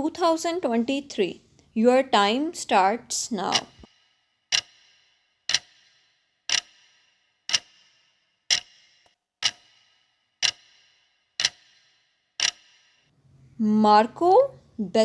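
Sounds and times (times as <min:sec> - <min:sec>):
clock ticking with ringing tail: 0:02.2 - 0:13.1.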